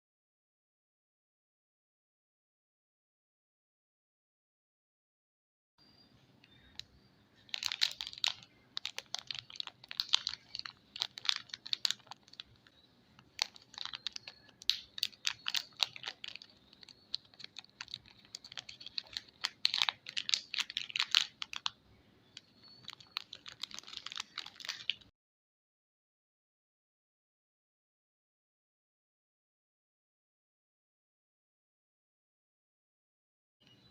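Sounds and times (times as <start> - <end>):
packaging crackling and tapping: 7.5 - 21.7, 22.4 - 25.1.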